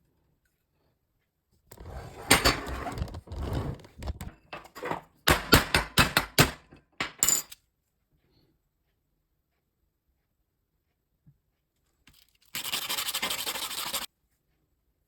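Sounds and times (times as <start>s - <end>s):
metal tool parts rattling: 7.0s - 7.6s.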